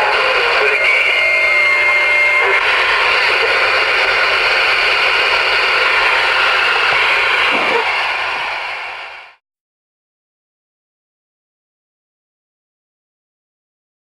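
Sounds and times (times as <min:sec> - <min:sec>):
radio static hiss: 0:00.0 - 0:09.4.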